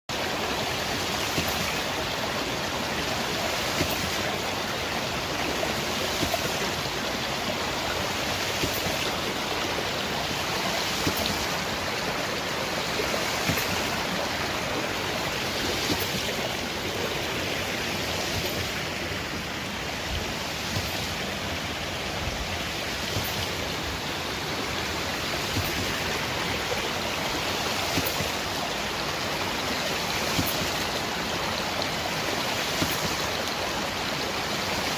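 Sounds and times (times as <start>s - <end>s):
water rushing: 0.1s - 34.9s
pump valve clacking: 3.7s - 5.2s, 6.2s - 19.0s, 22.8s - 29.4s, 30.1s - 31.2s.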